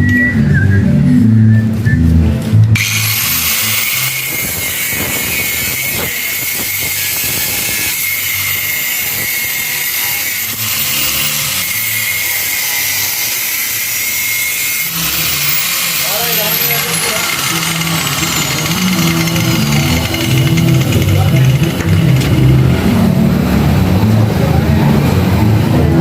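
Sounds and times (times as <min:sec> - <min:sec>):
power tool hissing and whining: 0:02.8 - 0:22.8.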